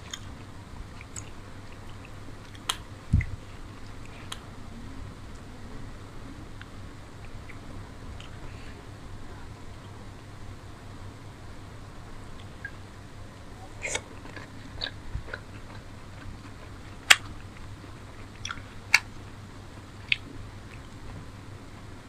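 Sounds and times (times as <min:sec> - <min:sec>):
chewing and biting food: 0:13.8 - 0:21.2
sharp mouth clicks: 0:18.4 - 0:19.1.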